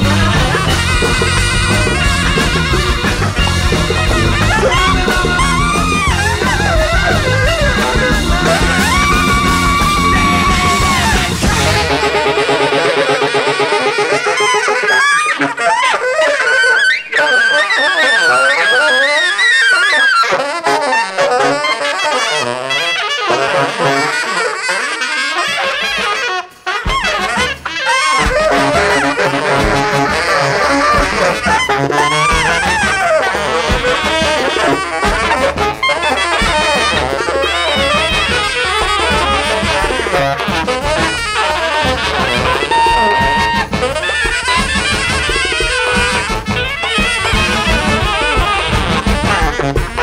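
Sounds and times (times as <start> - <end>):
bass and drums beat: 0.0 - 13.7, 25.6 - 50.0
jazz horn section playing: 0.0 - 50.0.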